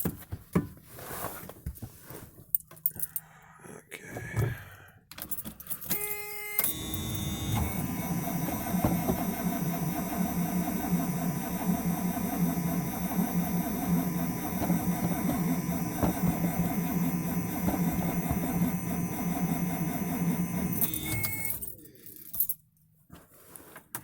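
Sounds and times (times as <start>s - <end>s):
car engine cranking on starter: 6.6s - 21.9s.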